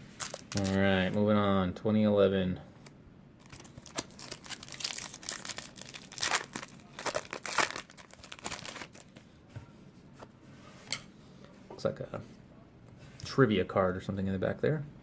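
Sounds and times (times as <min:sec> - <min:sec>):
wrapper tearing and crinkling: 0:00.2 - 0:00.9, 0:03.4 - 0:09.2.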